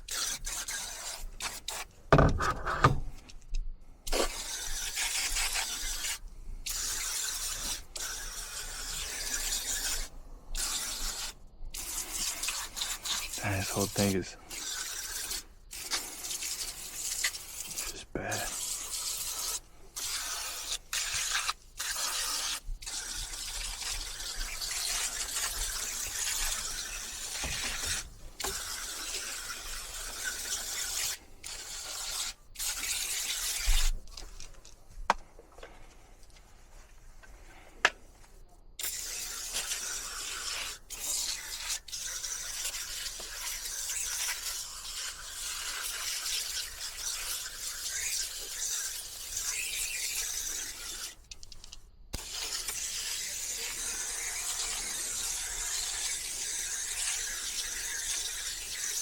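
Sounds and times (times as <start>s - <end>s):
spray hissing: 10.6s - 33.7s.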